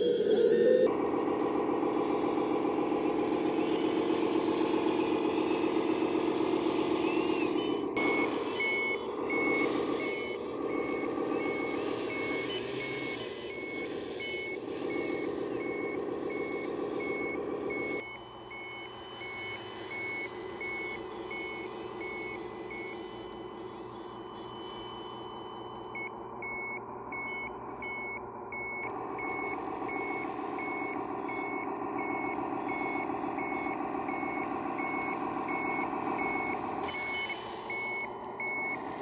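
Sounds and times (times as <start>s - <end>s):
engine running: 0.0s - 39.0s
reversing alarm beeping: 0.0s - 39.0s.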